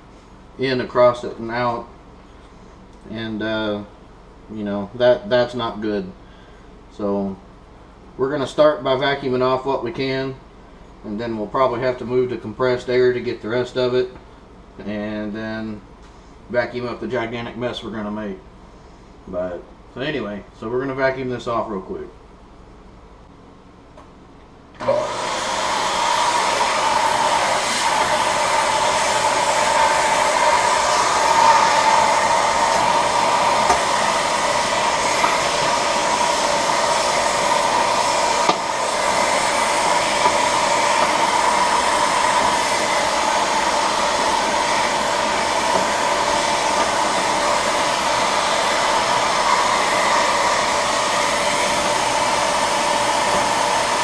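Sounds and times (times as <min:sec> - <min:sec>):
vacuum cleaner running: 0:24.8 - 0:54.0.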